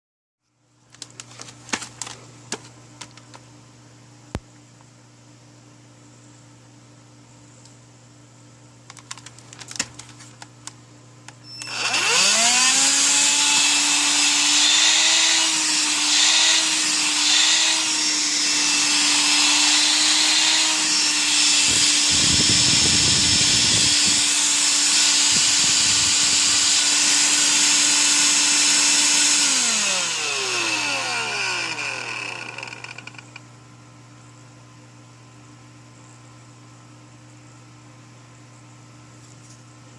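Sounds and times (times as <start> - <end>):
stick vacuum motor whining: 11.5 - 33.4.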